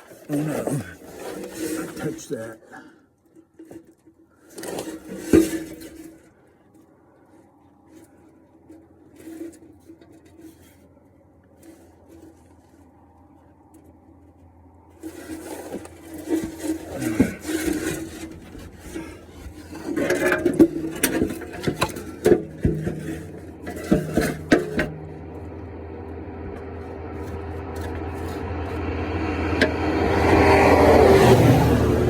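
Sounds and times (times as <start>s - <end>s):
metal oil pan scraping engine: 0.0s - 2.6s, 3.3s - 6.8s, 7.4s - 32.0s
steady rumble: 12.8s - 32.0s.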